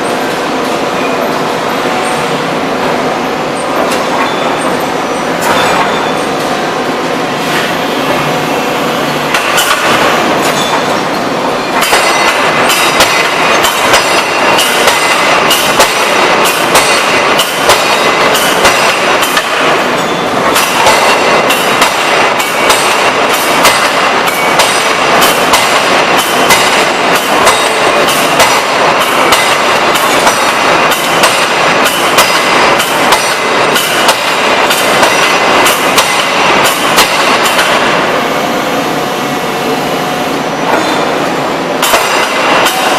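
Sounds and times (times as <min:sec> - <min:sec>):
shop machinery din: 0:00.0 - 0:42.9
forging hammer striking metal: 0:11.8 - 0:38.0, 0:41.8 - 0:42.9.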